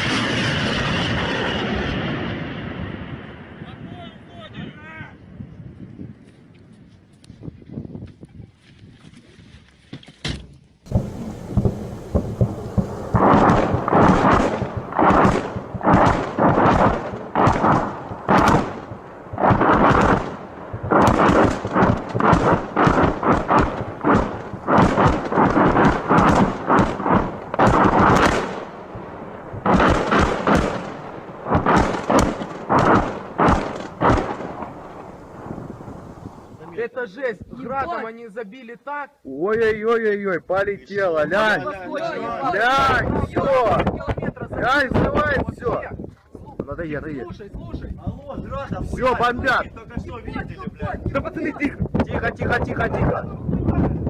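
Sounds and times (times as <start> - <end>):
rocket launcher salvo blasts: 10.9 - 36.7.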